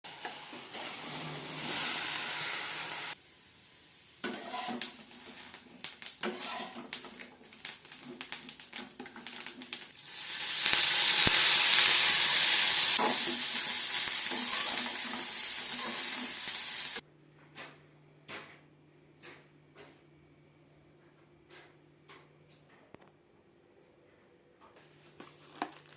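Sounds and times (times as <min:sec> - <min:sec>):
loud steady hiss: 0:00.1 - 0:17.0
utensils clinking against cookware: 0:06.2 - 0:07.2.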